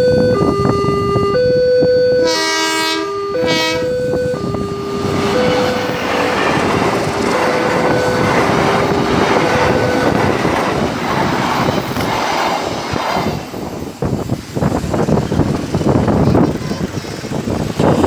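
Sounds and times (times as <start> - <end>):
two-tone train horn: 0.0 - 10.3
train wheels rushing and clacking: 4.4 - 18.0.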